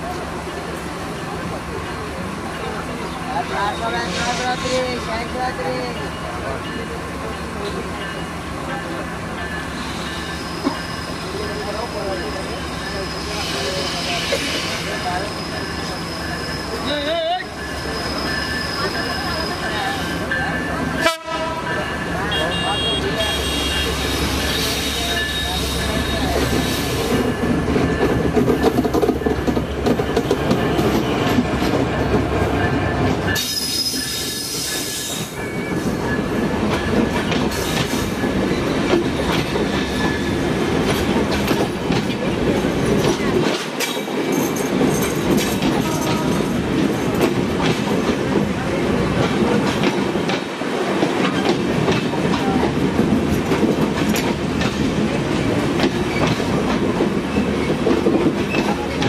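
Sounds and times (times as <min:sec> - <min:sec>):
diesel locomotive engine rumbling: 0:00.0 - 0:59.0
high wheel squeal: 0:09.7 - 0:20.4, 0:22.3 - 0:27.2, 0:33.3 - 0:35.9
train wheels clacking over rail joints: 0:24.4 - 0:59.0.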